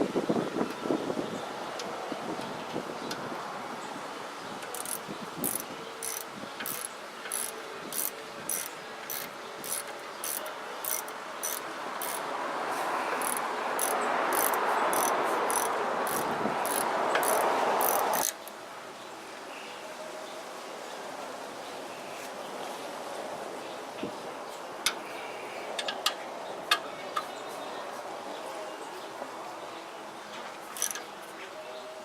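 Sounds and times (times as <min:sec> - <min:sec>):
ratchet wrench clicking: 0:04.7 - 0:12.2, 0:13.2 - 0:18.5, 0:30.8 - 0:31.0.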